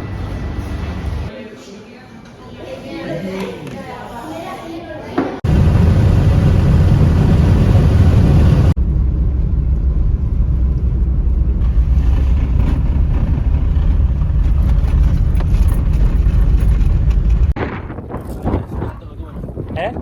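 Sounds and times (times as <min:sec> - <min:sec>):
vehicle rumble: 0:00.0 - 0:01.3, 0:05.4 - 0:17.6
wind: 0:00.0 - 0:01.4, 0:05.2 - 0:20.0.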